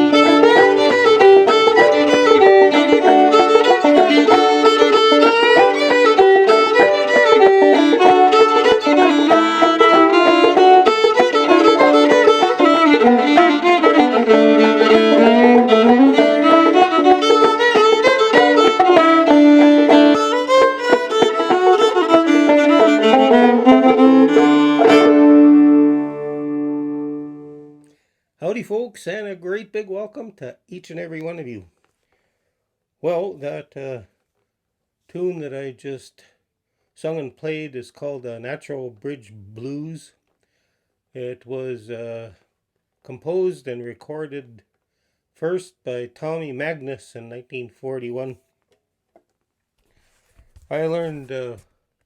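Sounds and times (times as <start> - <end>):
banjo plucked rhythm: 0.0 - 27.6
fiddle melody: 0.0 - 27.8.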